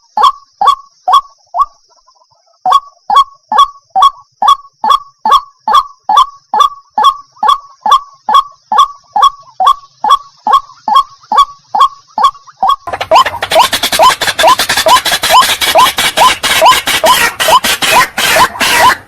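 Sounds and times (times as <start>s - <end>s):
waterhen honking calls: 9.2s - 19.0s.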